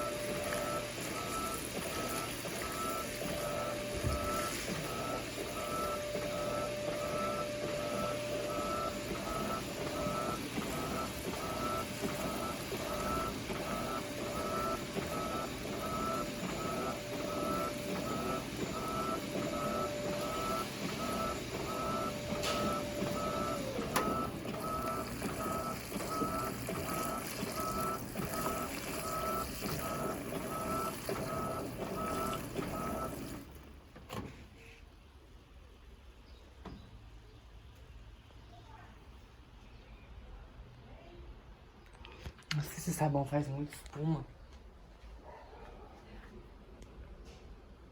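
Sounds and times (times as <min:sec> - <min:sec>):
washing machine beeping: 0:00.0 - 0:33.9
washing machine running: 0:00.0 - 0:36.8.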